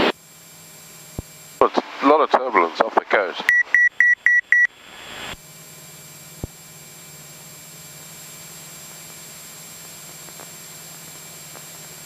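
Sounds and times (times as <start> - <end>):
intercom hiss: 1.6 - 3.8.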